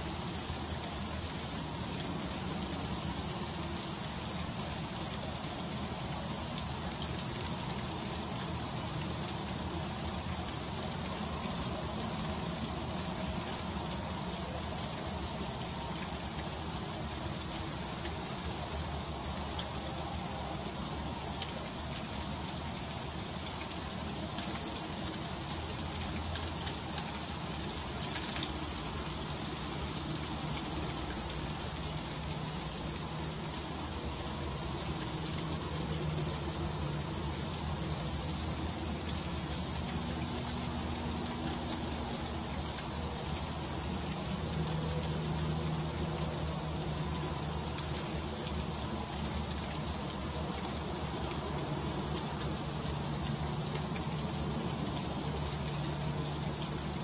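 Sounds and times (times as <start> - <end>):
freezing rain hissing: 0.0 - 57.0.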